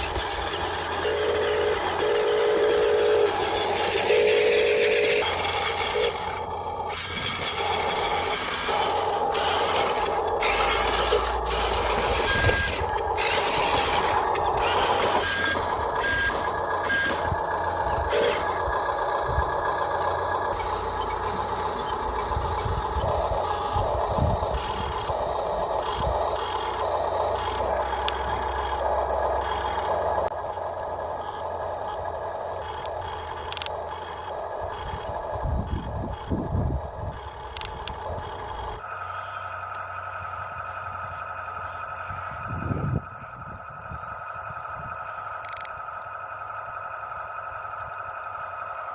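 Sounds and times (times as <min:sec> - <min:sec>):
gravel scraping and rattling: 0:00.0 - 0:30.3
reversing alarm beeping: 0:00.0 - 0:30.3, 0:32.6 - 0:39.4
small electric motors whining: 0:00.0 - 0:48.9.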